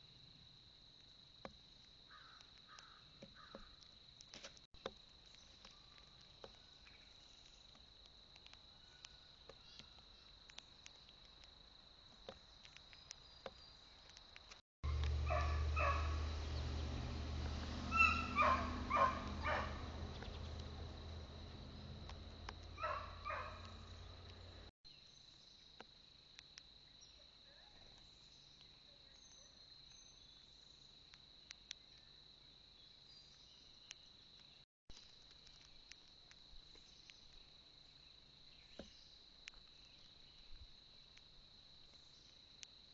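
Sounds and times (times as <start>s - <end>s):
steady low rumble: 14.8s - 24.7s
harsh animal calls: 14.9s - 16.6s, 17.8s - 20.2s.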